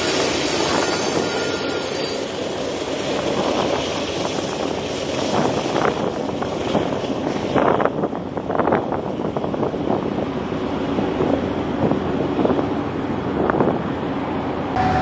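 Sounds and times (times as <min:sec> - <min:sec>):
train scraping surges: 0:00.0 - 0:06.1
freight train rumbling on rails: 0:00.0 - 0:15.0.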